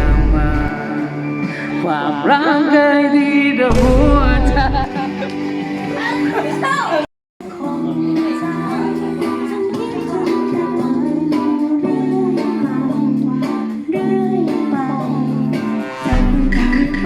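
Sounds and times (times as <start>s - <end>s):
person singing: 0.0s - 17.0s
strummed guitar chords: 3.7s - 10.8s.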